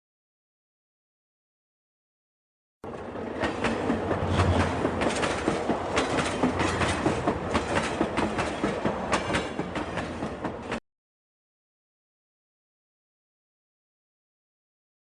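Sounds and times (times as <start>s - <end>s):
train wheels clickety-clack: 2.9s - 10.8s.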